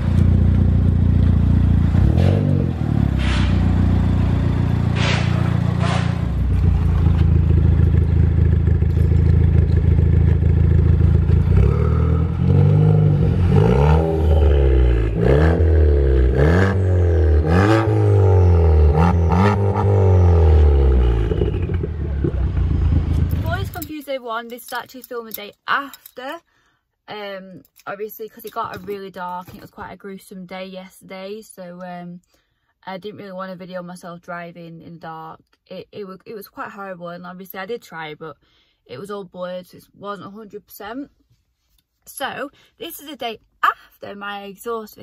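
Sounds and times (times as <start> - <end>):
car engine idling and revving: 0.0 - 23.9
sharp exhaust cracks: 0.0 - 24.0.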